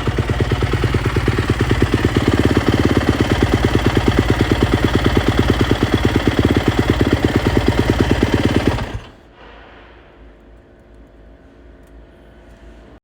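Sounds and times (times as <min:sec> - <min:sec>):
motorcycle engine idling: 0:00.0 - 0:09.3.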